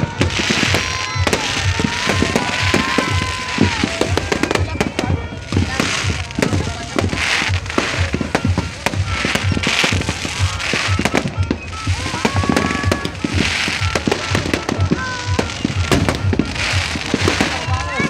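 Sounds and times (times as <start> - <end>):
fireworks bursting and crackling: 0.0 - 18.0
music with bass beat: 0.0 - 18.0
voices: 0.0 - 18.0.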